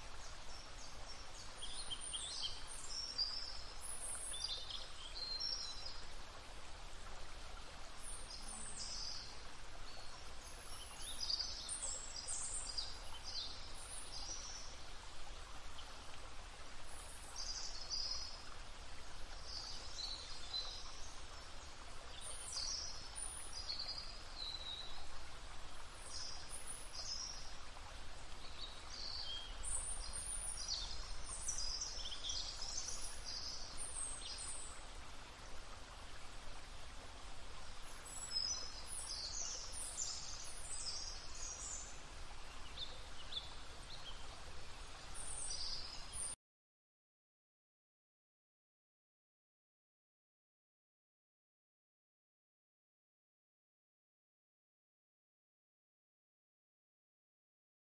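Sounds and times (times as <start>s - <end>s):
small birds twittering: 0.0s - 6.1s, 8.0s - 15.1s, 25.9s - 34.8s, 37.6s - 46.4s
outdoor hiss: 0.0s - 46.4s.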